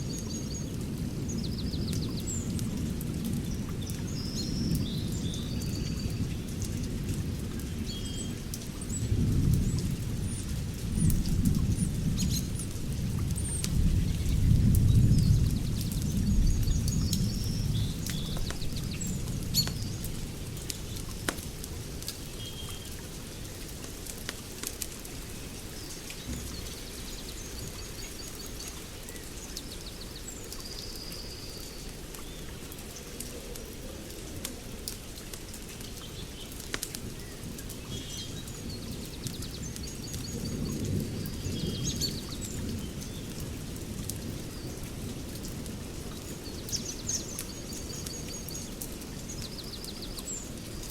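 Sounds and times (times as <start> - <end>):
wood fire crackling: 18.2 - 29.7, 32.0 - 37.8.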